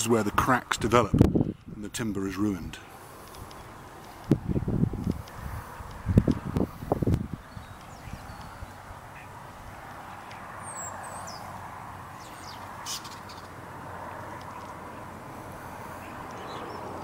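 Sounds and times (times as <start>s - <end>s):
outdoor background hiss: 0.0s - 17.0s
high bird chirps: 7.4s - 9.4s, 10.6s - 11.5s, 12.2s - 13.6s.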